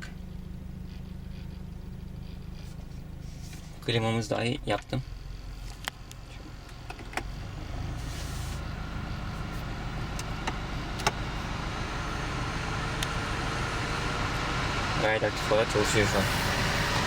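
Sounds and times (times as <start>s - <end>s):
low engine hum: 0.0s - 17.0s
air rushing from blower: 8.0s - 8.7s, 15.6s - 17.0s.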